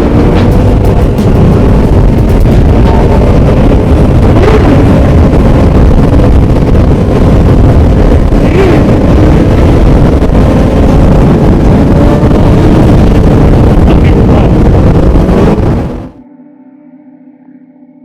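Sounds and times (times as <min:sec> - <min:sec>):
motorcycle engines running: 0:00.0 - 0:16.2
wind noise on microphone: 0:00.0 - 0:16.2.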